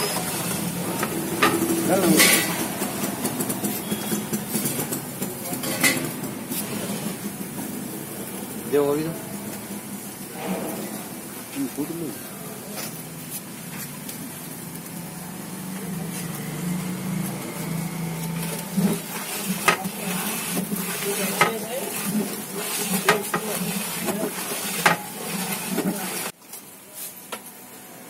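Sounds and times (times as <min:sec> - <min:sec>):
metal ladle scraping a pot: 0:00.0 - 0:02.7, 0:18.2 - 0:26.3
spices sizzling in hot oil: 0:00.0 - 0:04.7, 0:12.8 - 0:26.7.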